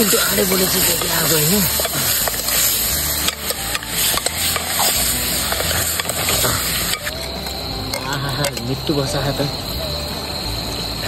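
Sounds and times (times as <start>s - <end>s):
meat sizzling in a pan: 0.0s - 8.2s
stirring clicks and scrapes: 0.0s - 8.6s.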